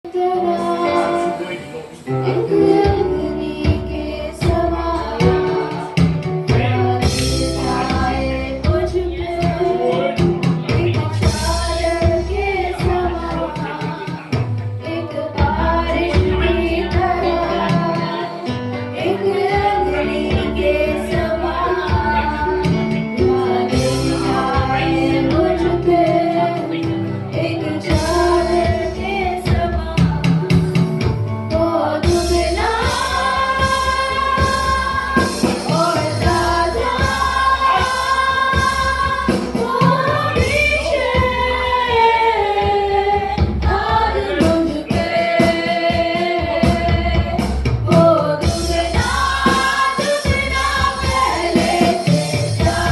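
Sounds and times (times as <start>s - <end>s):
group singing worship song: 0.1s - 52.9s
instrumental backing with beat: 0.1s - 52.9s.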